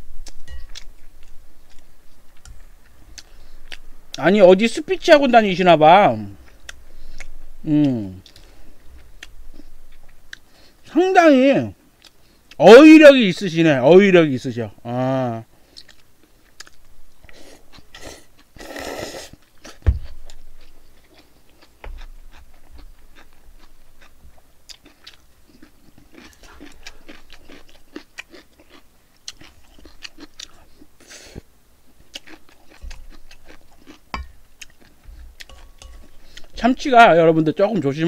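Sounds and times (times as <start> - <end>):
person chewing: 0.2 - 4.2, 6.3 - 10.8, 12.0 - 12.6, 15.6 - 36.6.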